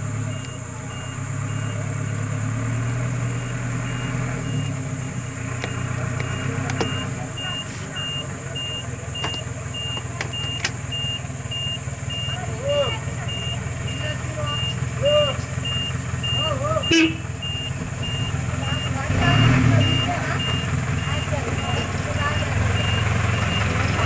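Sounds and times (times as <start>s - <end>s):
vehicle engine idling: 0.0s - 24.0s
sharp clicks: 5.5s - 7.2s, 8.7s - 11.0s.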